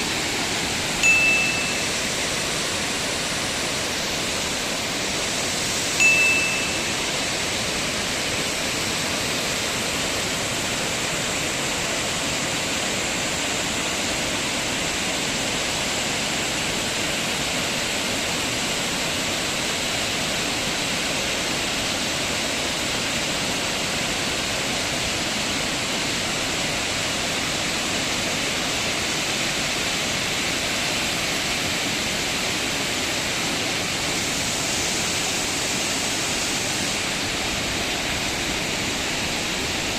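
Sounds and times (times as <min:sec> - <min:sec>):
running water rushing: 0:00.0 - 0:39.9
short high-pitched tone: 0:01.0 - 0:02.2, 0:06.0 - 0:07.2.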